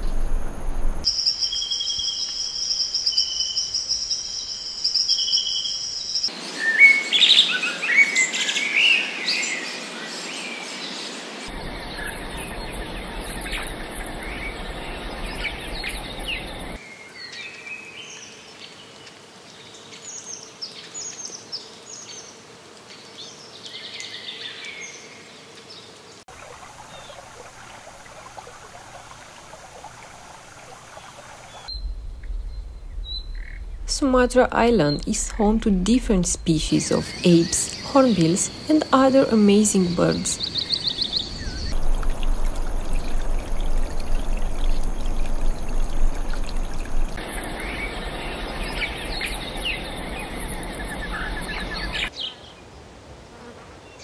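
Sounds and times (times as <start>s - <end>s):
birds chirping and calling: 11.5s - 16.8s, 34.4s - 41.8s, 44.6s - 52.3s
high insect trill: 11.5s - 16.8s, 31.6s - 52.1s.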